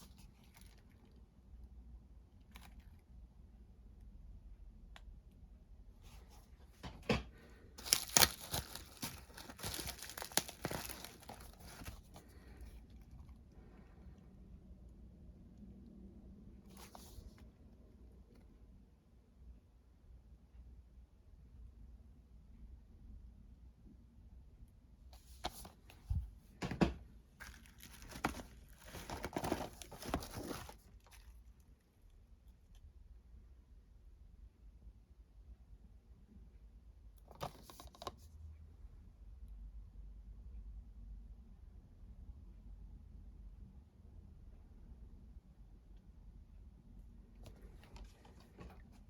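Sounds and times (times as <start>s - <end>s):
packaging crinkling and tearing: 7.8s - 12.6s, 27.4s - 31.5s.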